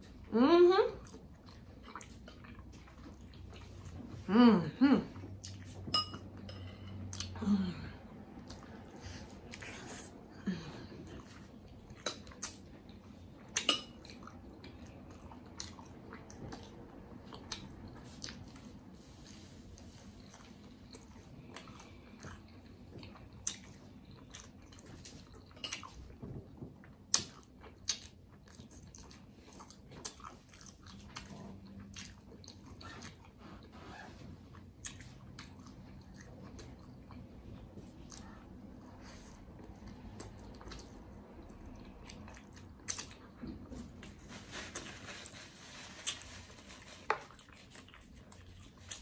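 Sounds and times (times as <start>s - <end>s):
wet chewing mouth sounds: 11.0s - 44.0s, 46.0s - 49.0s.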